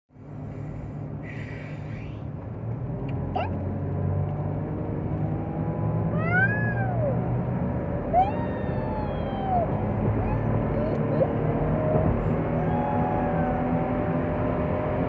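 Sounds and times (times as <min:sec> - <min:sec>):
car engine accelerating: 0:00.2 - 0:15.0.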